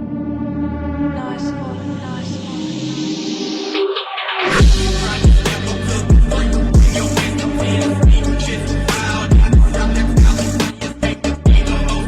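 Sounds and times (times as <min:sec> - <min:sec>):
hip hop backing track: 0:00.2 - 0:12.0
person rapping: 0:01.2 - 0:03.1, 0:04.6 - 0:12.0
deep falling bass-drum hits: 0:04.6 - 0:10.6.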